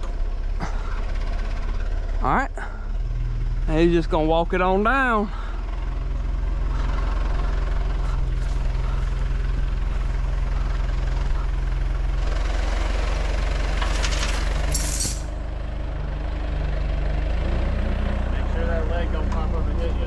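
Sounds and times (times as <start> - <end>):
backhoe diesel engine running: 0.0 - 20.0.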